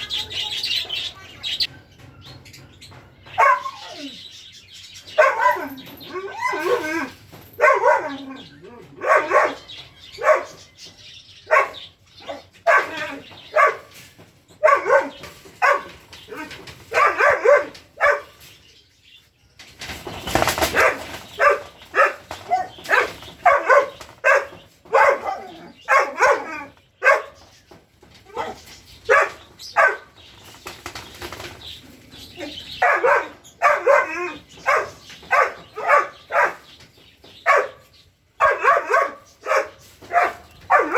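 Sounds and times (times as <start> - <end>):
dog barking: 3.3 - 4.1, 5.1 - 6.6, 7.5 - 10.7, 11.5 - 14.0, 14.6 - 18.4, 20.7 - 27.5, 28.3 - 30.1, 32.4 - 36.8, 37.4 - 40.9.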